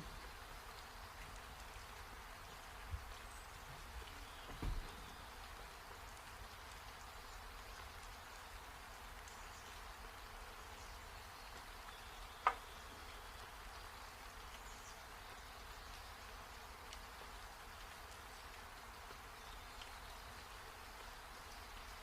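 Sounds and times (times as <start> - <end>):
rain falling: 0.0 - 22.0
low knock: 4.5 - 5.0.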